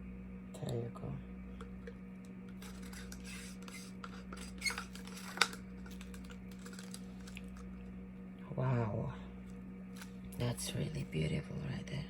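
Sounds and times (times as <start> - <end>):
low electrical hum: 0.0 - 12.0
scraping and rustling: 2.5 - 7.7.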